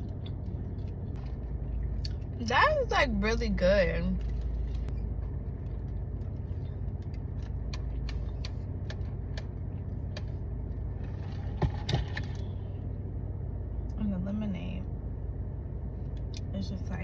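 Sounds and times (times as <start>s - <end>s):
chewing and food handling clicks: 0.0s - 1.2s
low hum: 0.0s - 17.0s.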